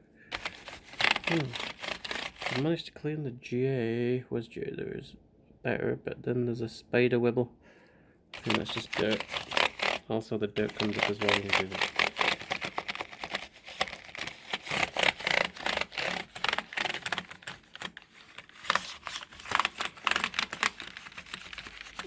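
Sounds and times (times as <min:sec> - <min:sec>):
brush scrubbing keyboard keys: 0:00.3 - 0:02.6, 0:08.4 - 0:10.0, 0:10.6 - 0:22.0.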